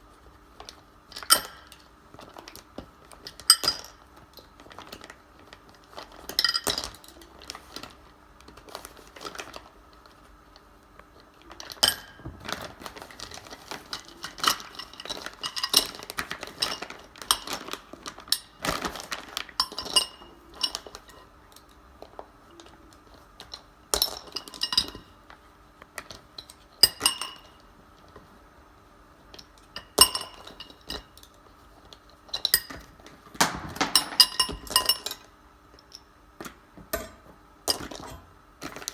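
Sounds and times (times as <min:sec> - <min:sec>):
hard objects clinking and knocking: 0:32.4 - 0:35.3.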